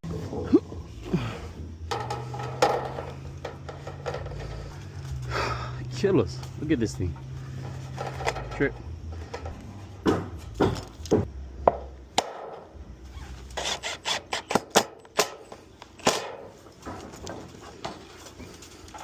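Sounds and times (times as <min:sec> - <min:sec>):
hammer knocks on wood: 0:10.0 - 0:12.4.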